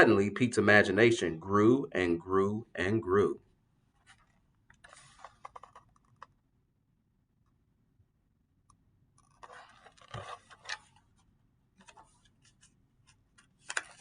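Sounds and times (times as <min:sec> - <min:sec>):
paper rustling and scraping: 0:04.0 - 0:06.0, 0:09.2 - 0:11.0, 0:11.8 - 0:14.0.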